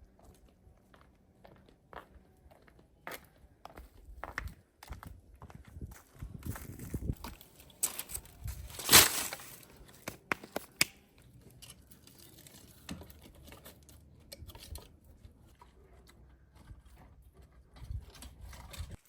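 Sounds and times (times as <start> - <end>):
crinkling and rustling handling: 5.8 - 19.0.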